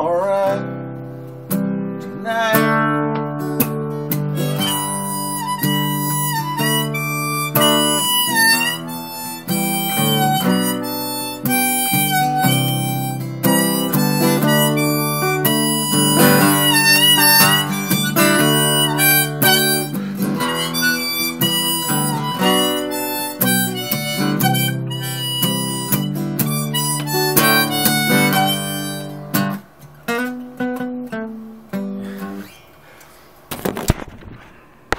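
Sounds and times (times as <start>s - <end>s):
strummed acoustic guitar: 0.0s - 32.7s
harmonica solo: 4.2s - 29.6s.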